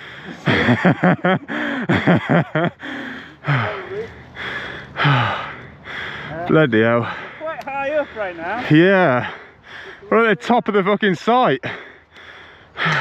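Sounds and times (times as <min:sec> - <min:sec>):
man breathing hard: 0:00.0 - 0:00.7, 0:01.4 - 0:02.0, 0:02.7 - 0:10.1, 0:11.6 - 0:13.0.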